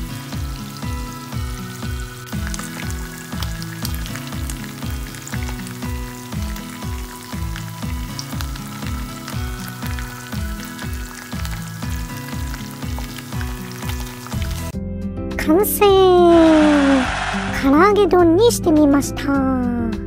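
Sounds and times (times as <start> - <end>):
chicken frying in oil: 0.0 - 14.7.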